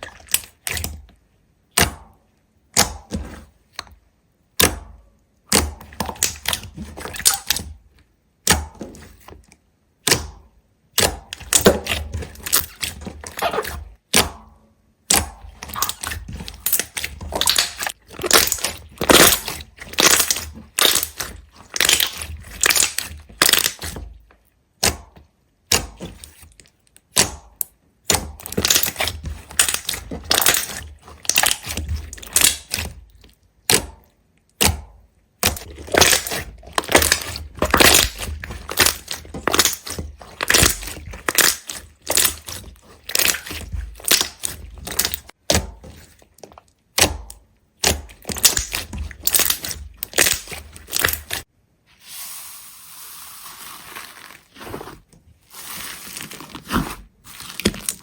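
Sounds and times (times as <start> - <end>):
brittle material crunching: 15.5 - 24.2, 28.4 - 33.9, 35.4 - 51.5, 53.2 - 58.0.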